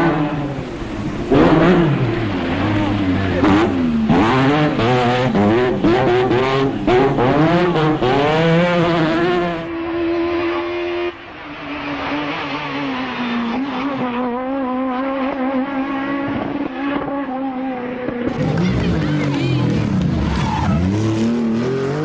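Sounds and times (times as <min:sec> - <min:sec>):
rally car engines revving: 0:00.0 - 0:22.0.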